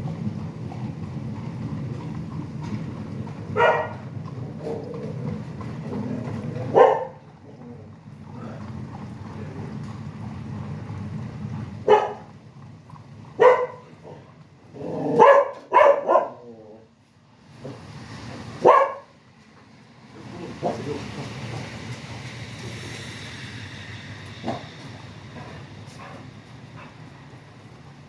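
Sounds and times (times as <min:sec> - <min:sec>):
highway traffic rumble: 0:00.0 - 0:28.0
dog barking: 0:03.6 - 0:04.1, 0:06.6 - 0:07.2, 0:11.8 - 0:12.3, 0:13.4 - 0:14.2, 0:15.1 - 0:16.5, 0:18.6 - 0:19.1.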